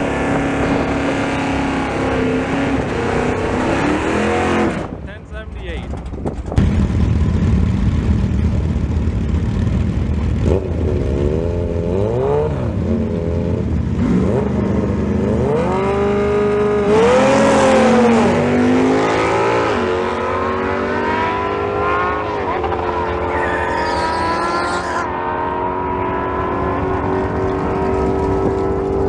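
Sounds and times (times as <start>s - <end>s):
motorcycle accelerating: 0.0s - 29.0s
low car engine rumble: 4.8s - 11.9s, 26.0s - 29.0s
motorcycle engine revving: 5.8s - 29.0s.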